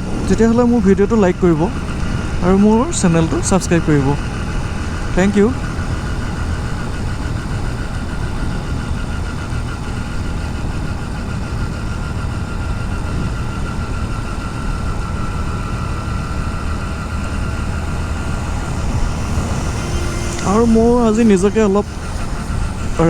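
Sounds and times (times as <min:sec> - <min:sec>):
motorcycle engine drone: 0:00.0 - 0:23.0
road and wind noise: 0:00.0 - 0:23.0
thin steady whine: 0:00.0 - 0:23.0.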